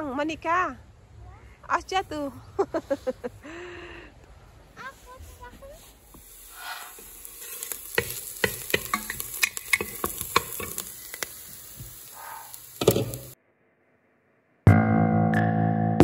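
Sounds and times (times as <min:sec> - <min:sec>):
onion sizzling in a pot: 0:05.7 - 0:13.4
wooden spoon scraping a pot: 0:06.5 - 0:10.9.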